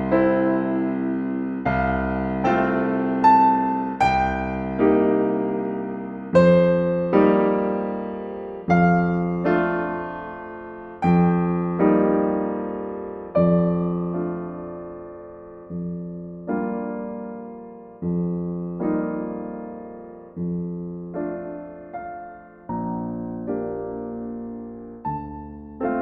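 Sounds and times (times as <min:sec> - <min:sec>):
gentle solo piano chords: 0:00.0 - 0:26.0.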